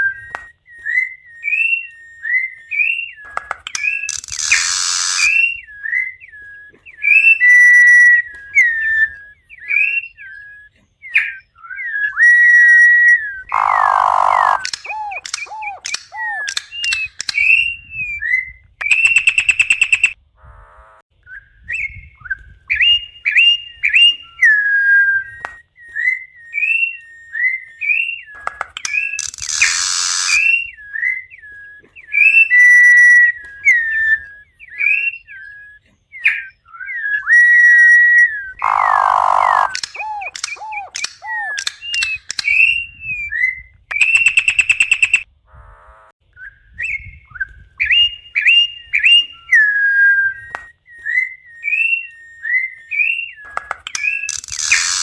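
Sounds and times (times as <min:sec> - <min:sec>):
bird whistled song: 0:00.0 - 0:20.2, 0:21.2 - 0:45.3, 0:46.3 - 0:55.0
harsh raspy bird note: 0:13.4 - 0:17.0, 0:38.6 - 0:41.6.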